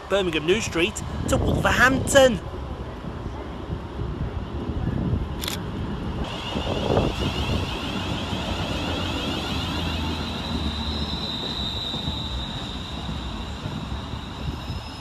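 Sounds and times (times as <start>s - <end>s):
electric train whine: 5.7s - 15.0s.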